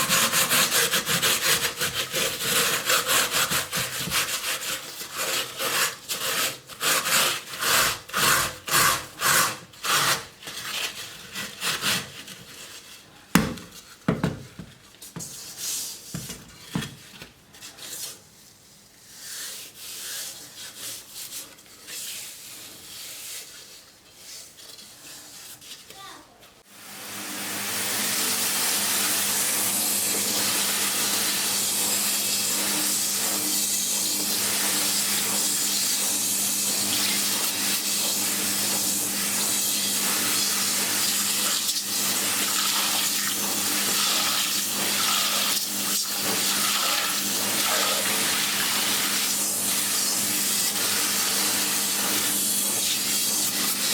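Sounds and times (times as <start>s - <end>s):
rubbing or scrubbing strokes: 0.0s - 13.2s, 17.5s - 26.0s, 27.6s - 53.9s
water running: 27.4s - 53.9s.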